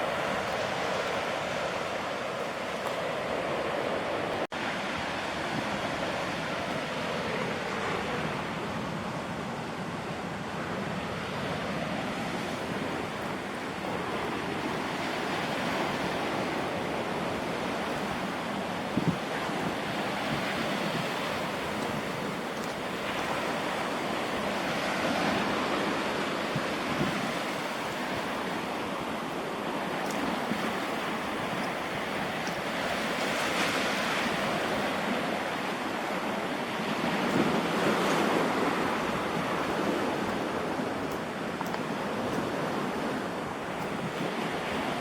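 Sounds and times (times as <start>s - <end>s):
sea surf washing ashore: 0.0s - 45.0s.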